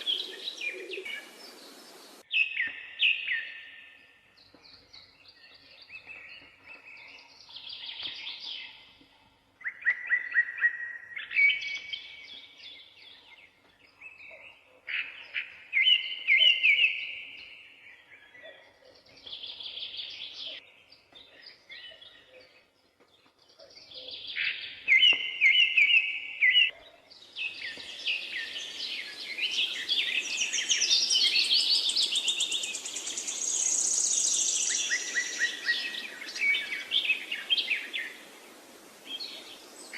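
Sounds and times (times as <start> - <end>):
songbirds singing trills: 0.0 - 39.9
steady hiss: 1.1 - 2.2, 32.4 - 39.9.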